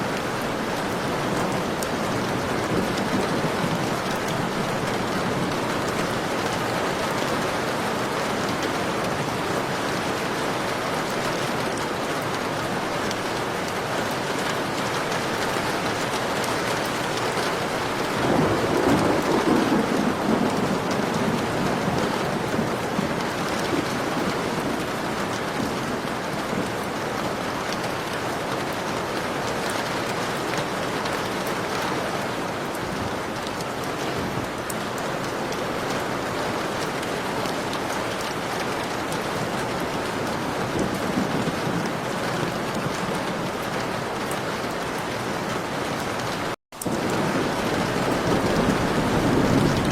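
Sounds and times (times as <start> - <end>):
heavy rain falling: 0.0 - 49.9
thunder rolling: 17.9 - 24.8, 46.8 - 49.9.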